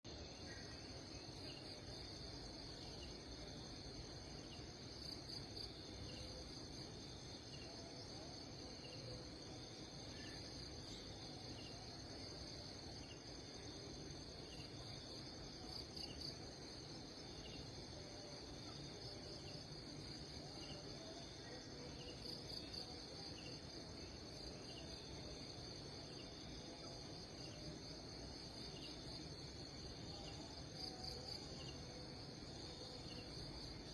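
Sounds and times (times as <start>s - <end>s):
insects chirring: 0.1s - 33.9s.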